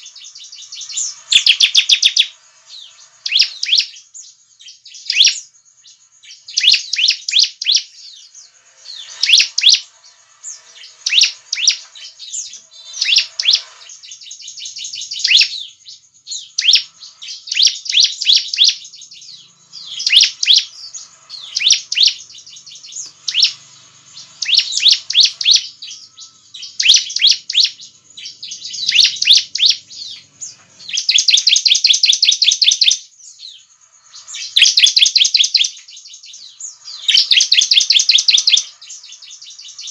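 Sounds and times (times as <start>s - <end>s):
bird chirping rapid high notes: 0.0s - 39.9s.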